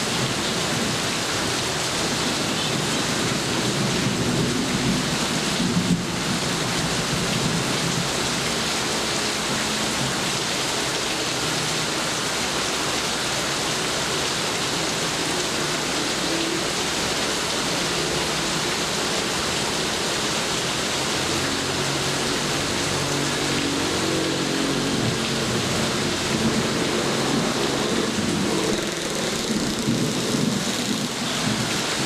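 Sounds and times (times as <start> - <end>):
steady rain hissing: 0.0 - 32.0.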